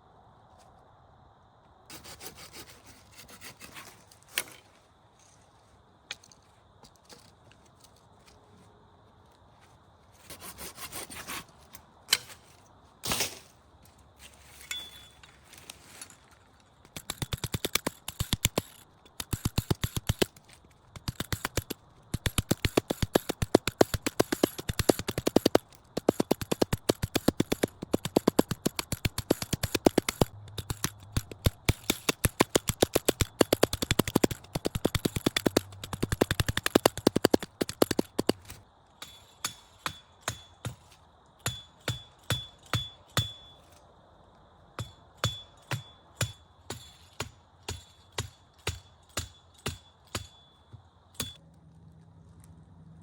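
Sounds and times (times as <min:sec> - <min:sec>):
sharp ringing knocks: 0:44.8 - 0:51.4.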